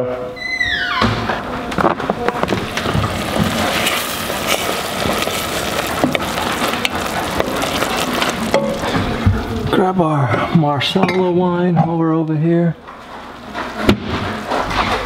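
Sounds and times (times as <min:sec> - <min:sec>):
vegetables sizzling in a pot: 0:02.1 - 0:10.2
spoon scraping a pan: 0:02.8 - 0:09.1.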